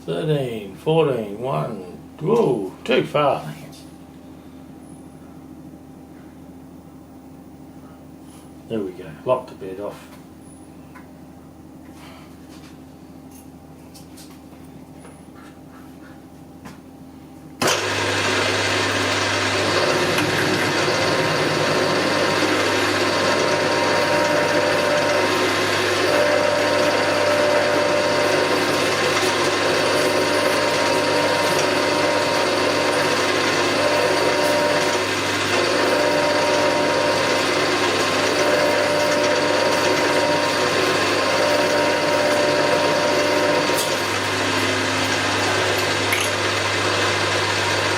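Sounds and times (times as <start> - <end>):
milling machine running: 17.6 - 47.9.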